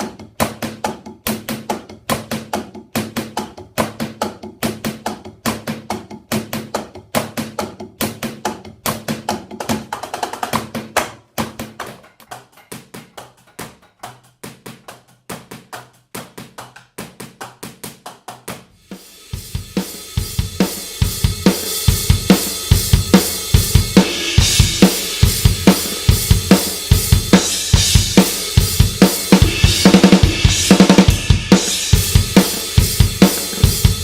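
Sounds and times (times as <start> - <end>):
drumsticks tapping rubber pads: 0.0 - 18.7.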